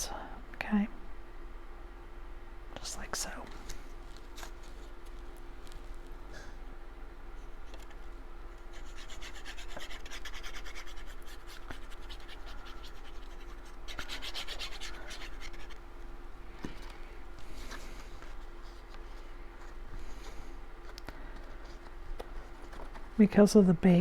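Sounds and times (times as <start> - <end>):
cardstock rubbed by hand: 8.7 - 15.8.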